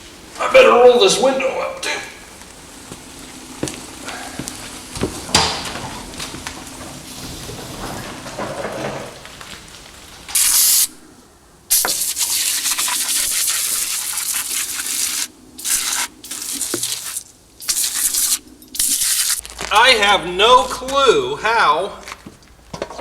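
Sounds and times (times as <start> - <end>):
aerosol can spraying: 10.4 - 11.0, 11.7 - 19.4.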